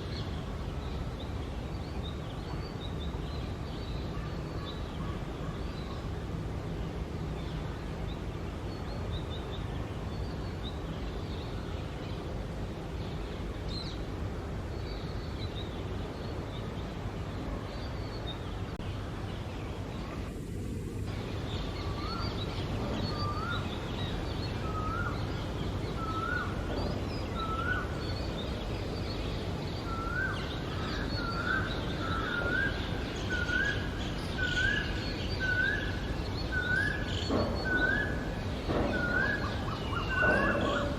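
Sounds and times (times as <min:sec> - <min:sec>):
birds chirping: 0:00.0 - 0:40.9
rising whistled bird notes: 0:29.8 - 0:40.9.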